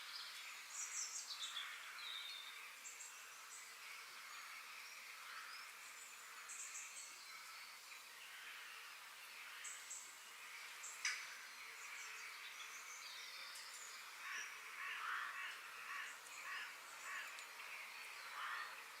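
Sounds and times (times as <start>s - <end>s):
small birds chirping: 0.0s - 19.0s
steady high hiss: 0.0s - 19.0s
harsh bird calls: 11.8s - 19.0s.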